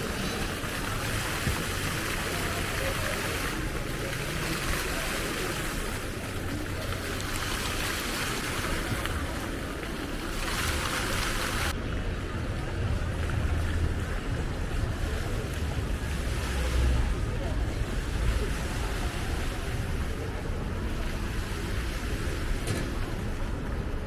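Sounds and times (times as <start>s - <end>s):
rain hissing: 0.0s - 11.8s
city traffic rumble: 0.0s - 24.0s.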